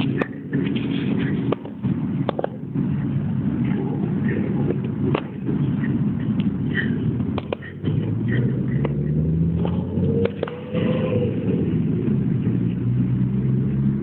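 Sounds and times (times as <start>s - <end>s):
traffic engines rumbling: 0.0s - 14.0s
engine rising in pitch: 7.8s - 14.0s.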